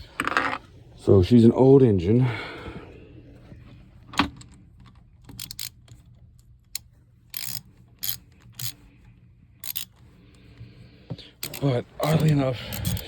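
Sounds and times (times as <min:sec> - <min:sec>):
metallic clicks of hand tools: 0:05.2 - 0:06.0, 0:06.7 - 0:08.8, 0:09.6 - 0:10.0, 0:11.4 - 0:13.0.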